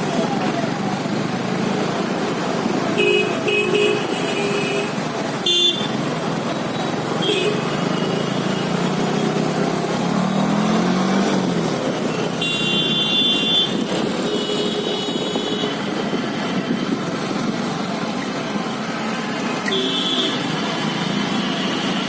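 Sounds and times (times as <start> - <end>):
car and motorcycle engines: 0.0 - 22.0
engine revving: 7.7 - 12.0.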